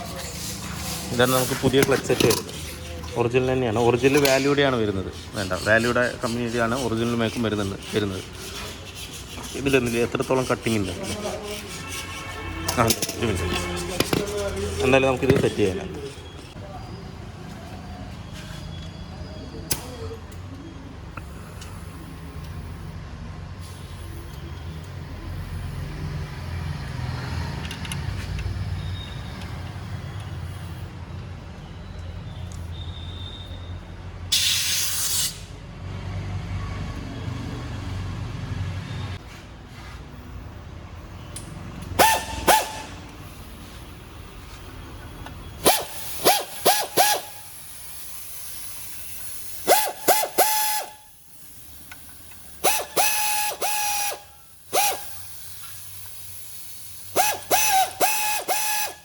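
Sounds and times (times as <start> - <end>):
air impact wrench bursts: 0.0 - 16.2, 23.6 - 26.6, 34.3 - 35.6, 41.0 - 59.0
loud hiss of air: 34.3 - 35.6, 45.6 - 59.0.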